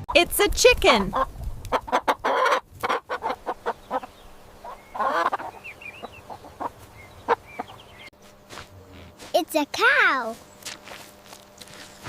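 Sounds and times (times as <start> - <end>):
chicken squawk: 1.0 - 7.8
chicken clucking: 1.0 - 8.0.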